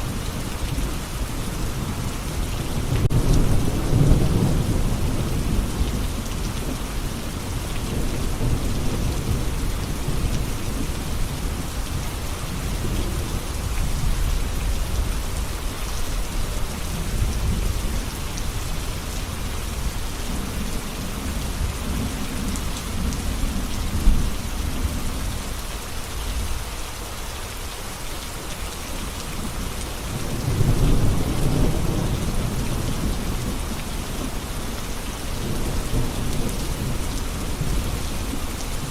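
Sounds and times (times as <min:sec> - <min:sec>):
heavy rain pattering: 0:00.0 - 0:38.9
thunder rumbling: 0:00.8 - 0:12.0, 0:29.4 - 0:34.4.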